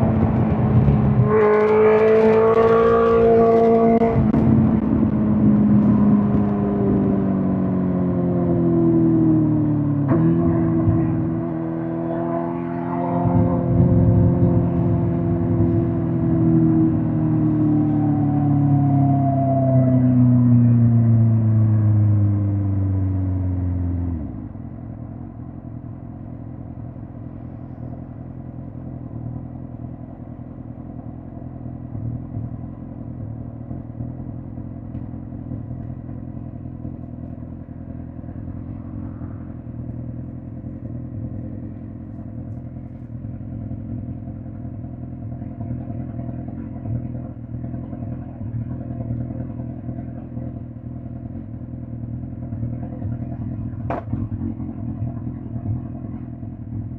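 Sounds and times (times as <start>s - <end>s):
motorcycle engine revs falling: 0.0s - 21.3s, 52.2s - 56.0s.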